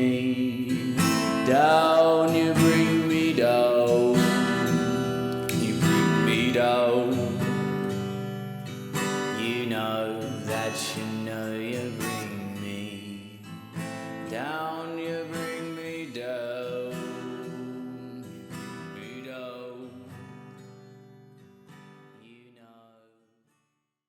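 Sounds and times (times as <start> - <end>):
acoustic guitar strumming: 0.0 - 22.2.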